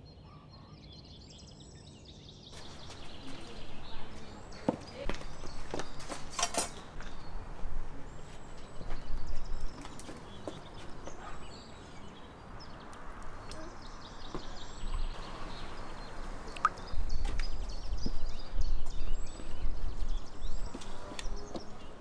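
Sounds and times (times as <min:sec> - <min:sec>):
faint bird chirps: 0:00.0 - 0:06.2.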